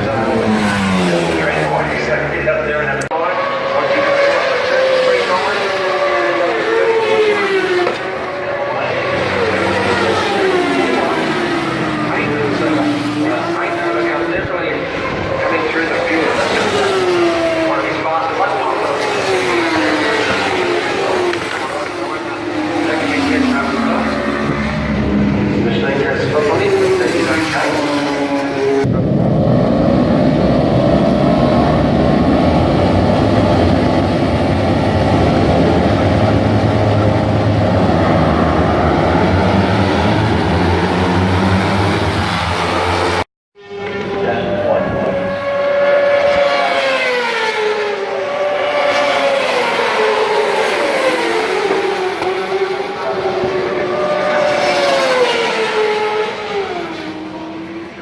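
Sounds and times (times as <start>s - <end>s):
racing motorcycle engines drone: 0.0s - 58.0s
motorbike engines at high revs: 29.7s - 58.0s.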